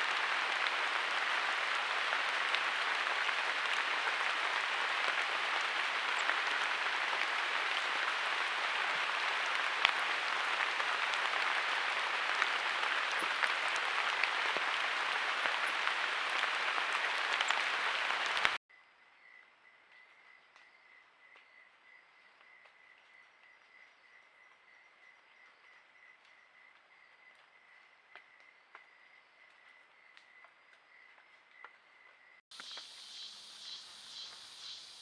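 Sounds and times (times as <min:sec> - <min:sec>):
heavy rain falling: 0:00.0 - 0:18.6.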